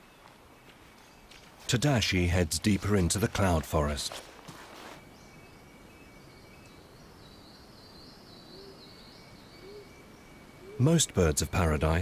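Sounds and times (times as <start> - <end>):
soft low rising bird calls: 4.8 - 11.2.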